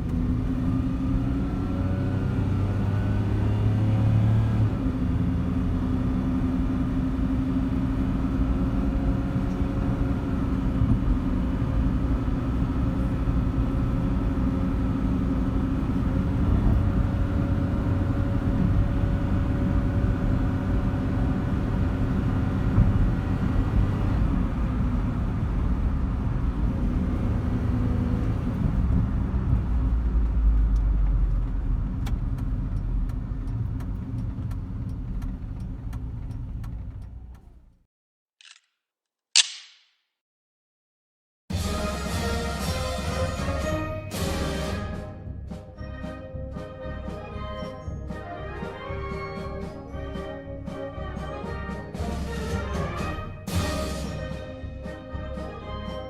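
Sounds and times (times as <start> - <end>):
small truck engine running: 0.0 - 37.8
low road rumble: 0.0 - 37.9.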